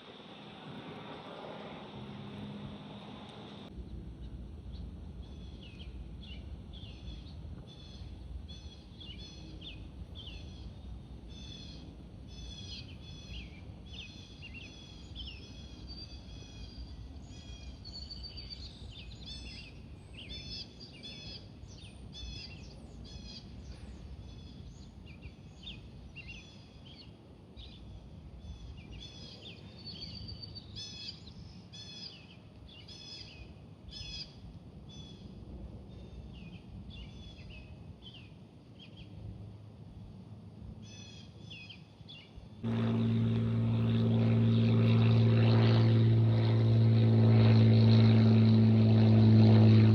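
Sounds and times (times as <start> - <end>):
low background rumble: 0.0 - 20.1, 42.6 - 49.9.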